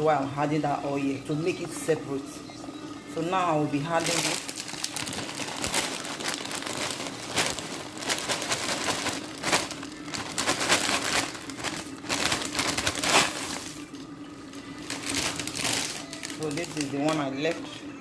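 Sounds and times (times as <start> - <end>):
plastic packaging crinkling: 3.8 - 17.7.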